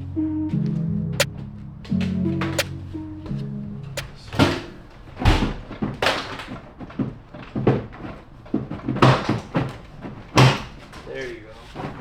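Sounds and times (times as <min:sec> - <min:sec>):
plastic bumper knocks and clunks: 0:01.1 - 0:12.0.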